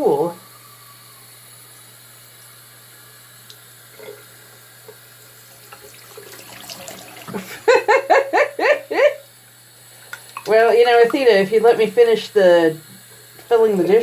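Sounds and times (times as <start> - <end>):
water running from tap: 3.4 - 8.5, 9.2 - 14.0.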